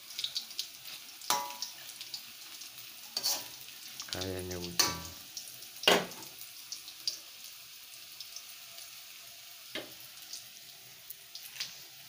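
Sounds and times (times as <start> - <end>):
food sizzling in a wok: 0.0 - 12.0
spatula scraping a wok: 3.1 - 3.6.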